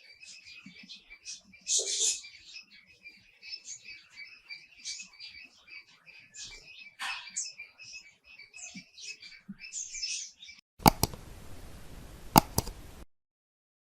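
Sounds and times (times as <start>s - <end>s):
small birds chirping: 0.0s - 13.0s
sharp clicks: 10.8s - 11.3s, 12.3s - 12.9s.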